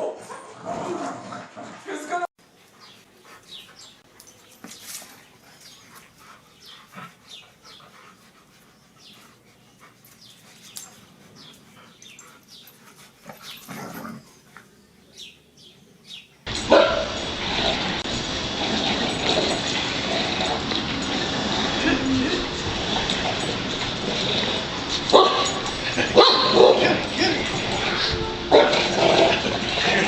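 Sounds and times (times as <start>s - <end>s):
loud steady rushing noise: 16.5s - 30.0s
dog barking or growling: 16.6s - 17.8s, 25.0s - 27.6s, 28.5s - 30.0s.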